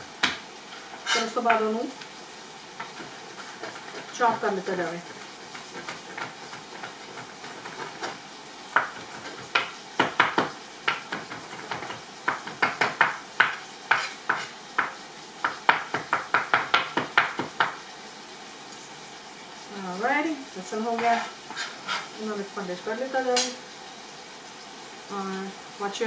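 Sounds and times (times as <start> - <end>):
chicken sizzling in a pan: 0.0 - 26.0
knife chopping garlic: 2.8 - 17.8.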